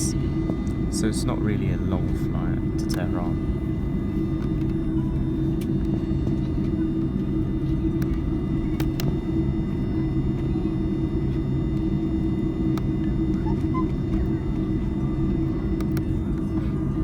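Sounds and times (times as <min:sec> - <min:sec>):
jet engines idling drone: 0:00.0 - 0:17.0.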